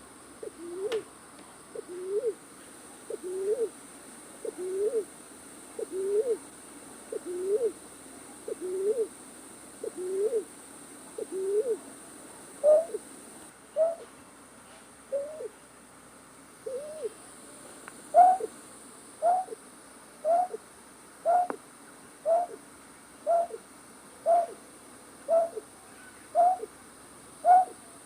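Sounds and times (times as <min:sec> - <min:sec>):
hooting bird call: 0:11.2 - 0:11.8, 0:12.6 - 0:13.0, 0:13.7 - 0:14.1, 0:15.1 - 0:15.6, 0:16.7 - 0:17.2, 0:18.1 - 0:18.5, 0:19.2 - 0:19.6, 0:20.2 - 0:20.6, 0:21.2 - 0:21.6, 0:22.2 - 0:22.6, 0:23.2 - 0:23.6, 0:24.2 - 0:24.6, 0:25.3 - 0:26.7, 0:27.4 - 0:27.8.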